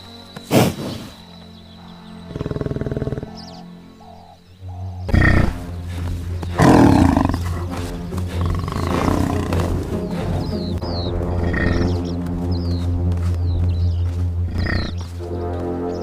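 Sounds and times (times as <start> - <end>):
background music with low bass: 0.0 - 16.0
big cat roaring: 2.3 - 3.5, 5.1 - 5.7, 6.6 - 9.9, 11.3 - 12.0, 14.5 - 15.0.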